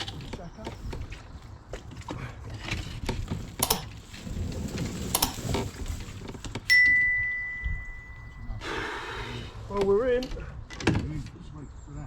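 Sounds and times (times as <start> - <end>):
kayak gear clunking: 0.0 - 8.6
ringing tone: 6.7 - 8.6.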